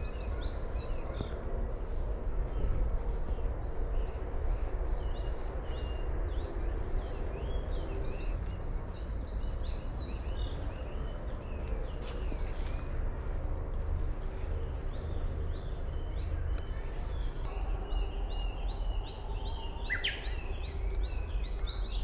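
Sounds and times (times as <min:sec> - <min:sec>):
low rumble: 0:00.0 - 0:21.9
songbird chirping: 0:00.0 - 0:22.0.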